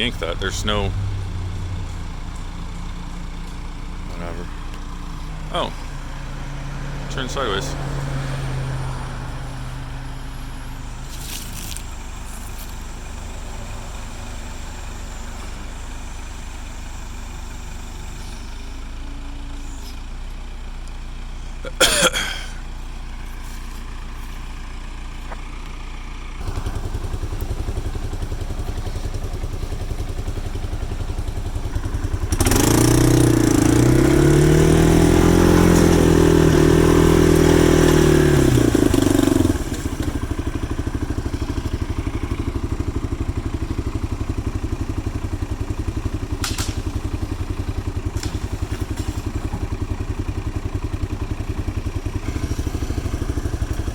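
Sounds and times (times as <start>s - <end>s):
backhoe engine revving: 0.0s - 53.9s.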